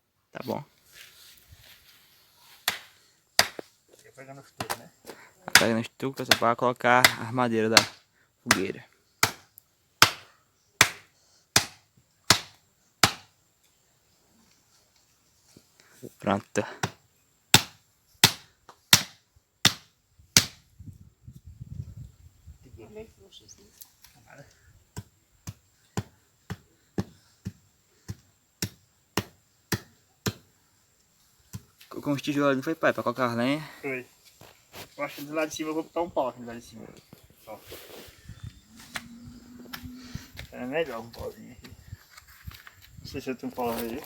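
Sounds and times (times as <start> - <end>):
tool striking hard material: 2.6 - 3.7, 5.5 - 9.4
wooden stake being hammered: 2.6 - 3.7, 4.6 - 4.9, 5.5 - 13.3, 16.8 - 20.7, 25.0 - 30.5.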